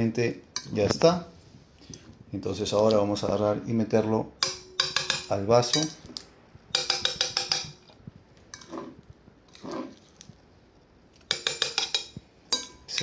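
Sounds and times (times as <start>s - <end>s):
soft muffled sounds: 0.0s - 4.4s
metal utensil tapping a dish: 4.4s - 6.0s, 6.7s - 7.9s, 11.3s - 13.0s.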